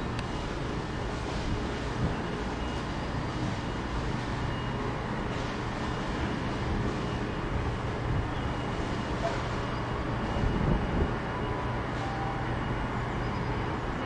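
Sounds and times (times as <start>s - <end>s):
train approaching hum: 0.0s - 14.0s.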